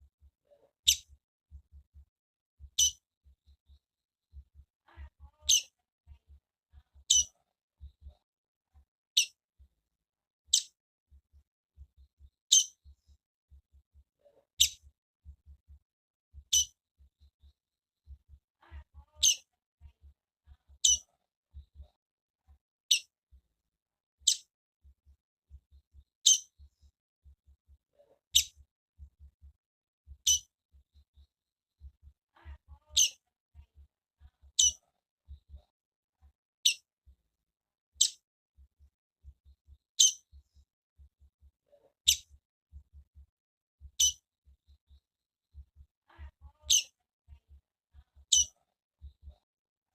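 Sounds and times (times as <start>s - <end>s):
bird chirping: 0.5s - 1.8s, 2.6s - 8.2s, 9.1s - 9.4s, 10.5s - 10.8s, 11.8s - 13.2s, 14.2s - 15.4s, 16.4s - 22.0s, 22.9s - 23.1s, 24.2s - 24.5s, 25.5s - 26.9s, 28.0s - 28.6s, 30.1s - 35.7s, 36.6s - 36.9s, 38.0s - 38.2s, 39.2s - 40.6s, 41.7s - 42.4s, 43.8s - 49.4s.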